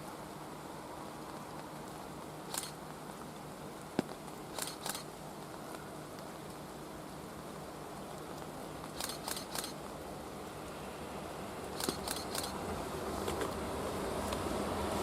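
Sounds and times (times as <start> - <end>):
rain hissing: 0.0 - 15.0
quick clicks: 2.5 - 2.8, 4.5 - 5.1, 8.9 - 9.8, 11.8 - 12.6.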